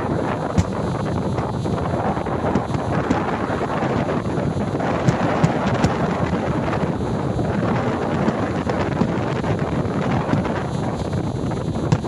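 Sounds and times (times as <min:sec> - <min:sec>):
fireworks booming: 0:00.0 - 0:12.0
wind noise on microphone: 0:00.0 - 0:12.0
sharp firework cracks: 0:00.4 - 0:06.6, 0:07.6 - 0:10.7.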